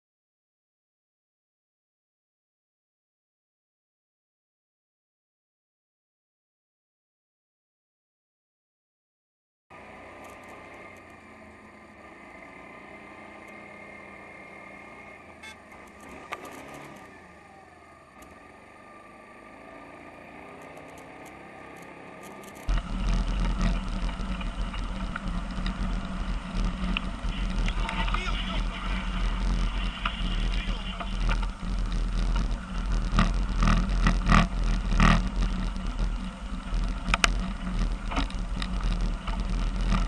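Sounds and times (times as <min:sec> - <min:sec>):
vehicle engine and road noise: 0:09.7 - 0:40.0
sharp click: 0:15.7 - 0:17.1, 0:20.6 - 0:22.8
deep rumbling noise: 0:22.3 - 0:40.0.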